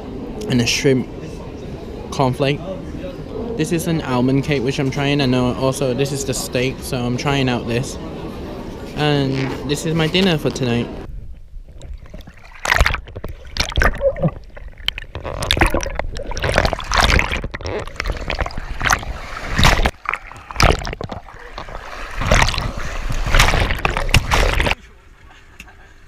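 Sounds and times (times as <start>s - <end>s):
water splashing and sloshing: 11.1s - 24.8s.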